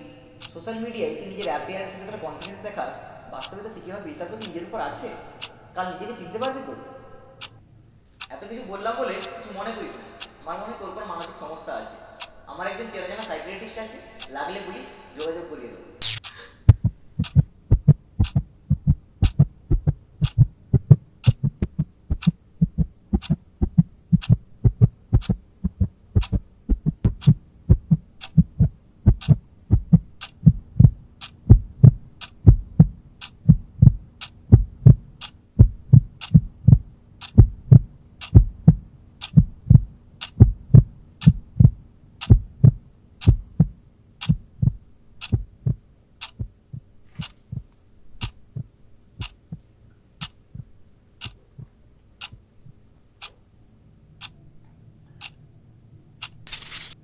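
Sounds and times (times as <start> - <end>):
steady low hum: 0.0 - 57.0
heartbeat thumps: 16.7 - 51.8.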